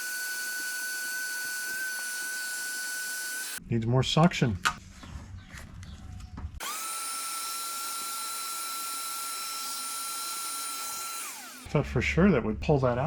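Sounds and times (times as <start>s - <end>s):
shop vac whining: 0.0s - 3.6s, 6.6s - 11.8s.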